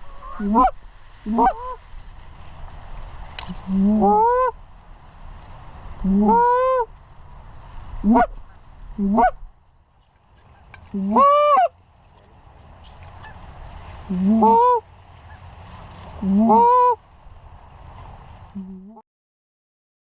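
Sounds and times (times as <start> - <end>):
goose call honks: 0.0 - 1.8, 3.5 - 4.6, 6.0 - 6.9, 8.0 - 9.4, 10.4 - 11.7, 13.1 - 13.4, 14.1 - 15.5, 16.2 - 17.0.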